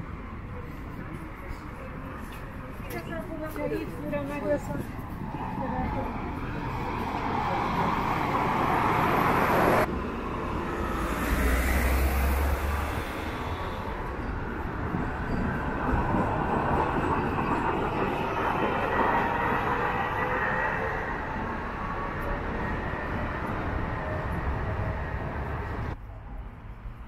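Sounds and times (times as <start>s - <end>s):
city traffic noise: 0.0s - 27.0s
heavy vehicle rumbling past: 6.7s - 14.6s.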